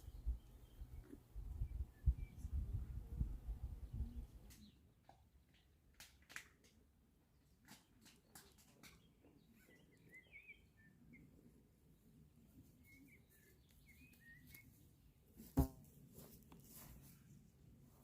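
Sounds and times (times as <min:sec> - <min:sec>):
faint bird chirps: 0:08.9 - 0:11.5.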